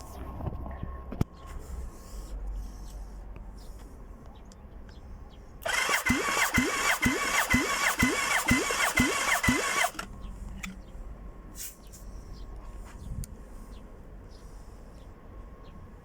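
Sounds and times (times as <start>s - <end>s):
engine starter whine: 5.6s - 10.8s.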